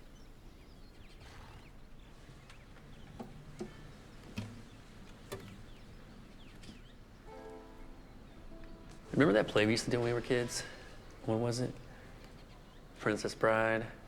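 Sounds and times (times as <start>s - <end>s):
low steady background hum: 0.0s - 14.0s.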